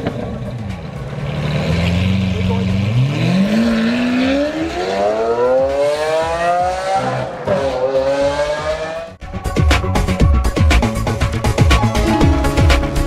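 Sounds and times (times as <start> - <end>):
car engine accelerating hard: 0.0 - 9.2.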